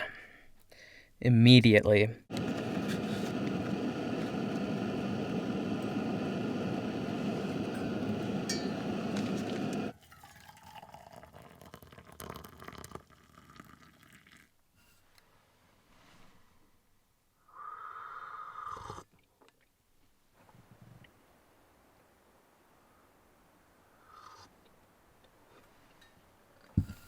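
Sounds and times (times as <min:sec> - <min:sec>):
propane burner hissing: 0:02.3 - 0:09.9.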